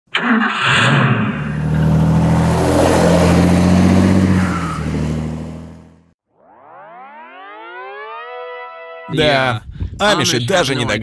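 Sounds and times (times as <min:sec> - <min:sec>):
motor vehicle engine running: 0:01.2 - 0:06.1.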